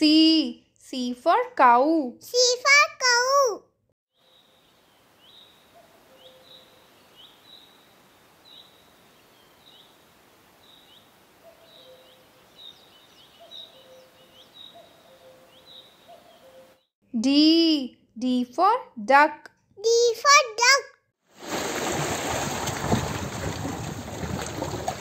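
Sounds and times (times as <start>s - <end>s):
light background hiss: 4.2s - 13.4s
faint bird chirps: 4.2s - 16.9s.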